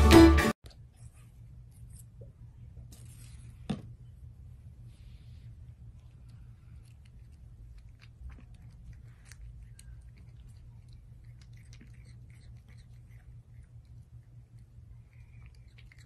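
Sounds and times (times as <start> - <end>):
steady low hum: 0.6 - 16.0
cat licking and chewing: 5.6 - 16.0.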